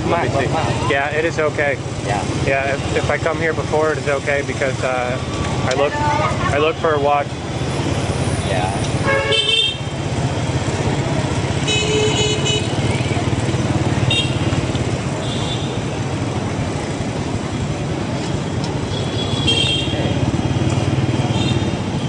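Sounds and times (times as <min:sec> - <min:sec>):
motorbike engine and road rumble: 0:00.0 - 0:22.0
motorbike horn toots: 0:09.0 - 0:09.9, 0:11.6 - 0:12.8, 0:14.0 - 0:14.5.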